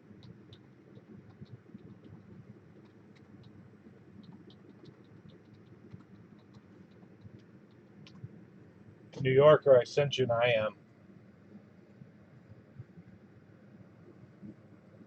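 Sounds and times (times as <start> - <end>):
computer keyboard and mouse clicks: 0.0 - 8.4
low room hum: 0.0 - 15.0.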